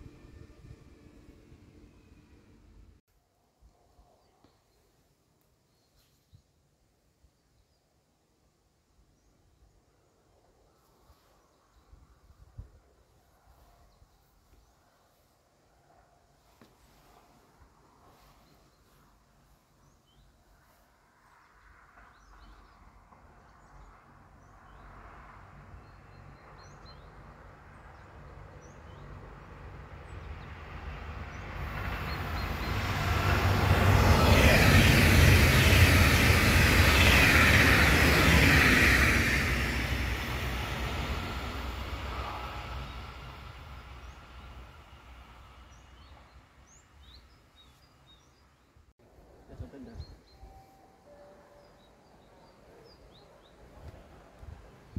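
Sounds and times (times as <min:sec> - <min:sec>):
train passing by: 0:00.0 - 0:03.0, 0:20.5 - 0:47.6, 0:49.2 - 0:54.9.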